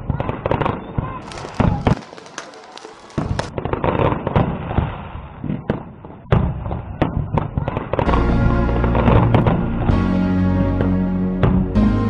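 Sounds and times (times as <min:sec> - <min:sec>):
fireworks bursting with bangs: 0:00.1 - 0:09.6
fireworks crackling: 0:01.2 - 0:05.0
music: 0:08.1 - 0:12.0.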